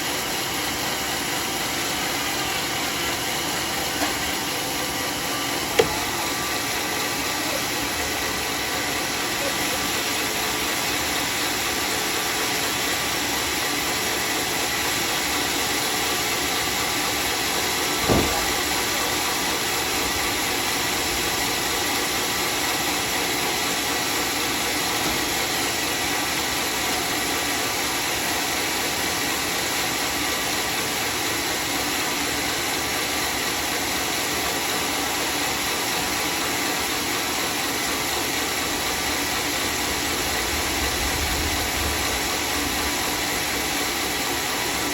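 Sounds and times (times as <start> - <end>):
circular saw running: 0.0 - 44.9
sharp knock: 5.8 - 6.2.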